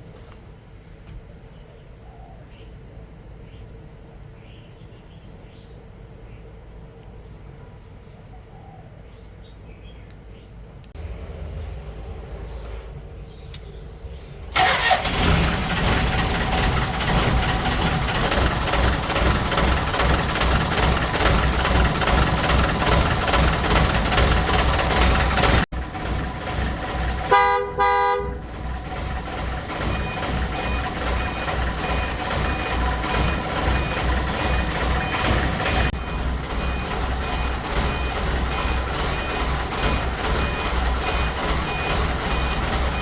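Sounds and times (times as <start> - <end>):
vehicle engine rumbling: 9.9 - 43.0
vehicle horn: 27.2 - 28.5.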